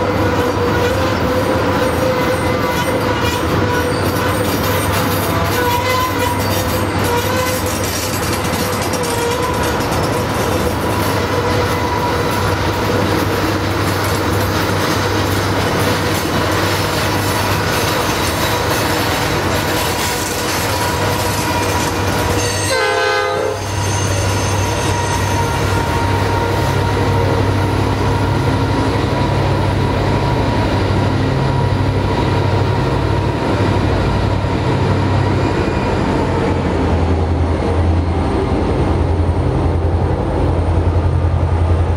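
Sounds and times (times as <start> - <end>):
diesel locomotive drone: 0.0 - 41.9
train wheels on rails: 0.0 - 41.9
wheel squeal: 1.9 - 12.2, 23.6 - 25.9.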